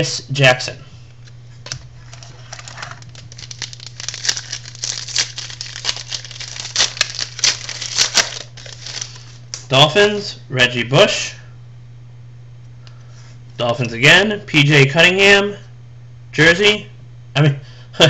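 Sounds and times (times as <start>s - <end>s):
wrapper tearing and crinkling: 2.0s - 9.7s.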